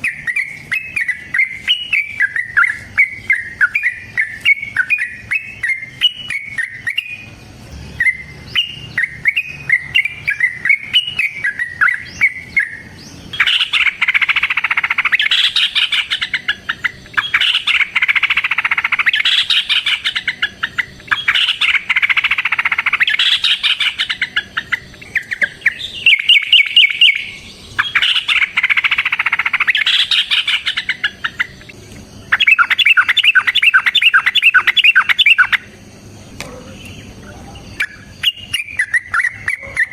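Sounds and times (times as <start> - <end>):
bulbul singing: 0.0 - 39.9
bird chattering bursts: 8.0 - 35.7.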